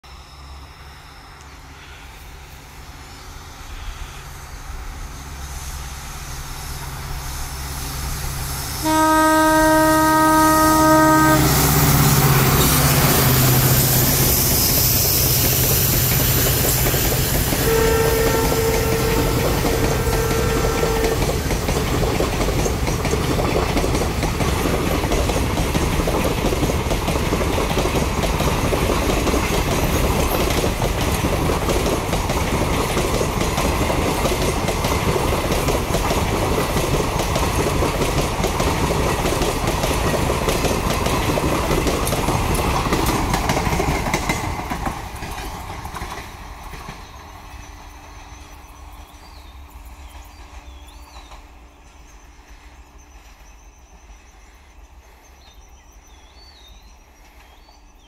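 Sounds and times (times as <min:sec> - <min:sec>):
train wheels on rail: 0:00.0 - 0:58.0
locomotive engine hum: 0:00.1 - 0:48.9
locomotive air horn blasts: 0:08.8 - 0:12.0, 0:17.6 - 0:21.4.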